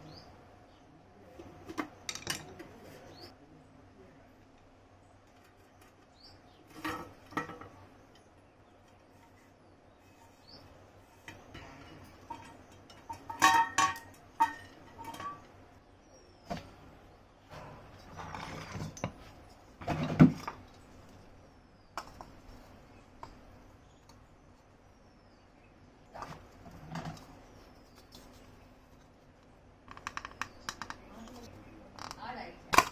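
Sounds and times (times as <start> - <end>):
metal scraping: 17.4 - 20.6.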